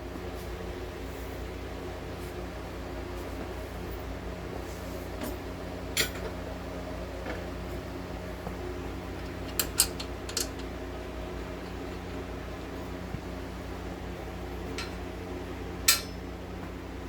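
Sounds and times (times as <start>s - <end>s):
shop fan humming: 0.0s - 17.0s
metal tools clinking: 9.4s - 10.7s.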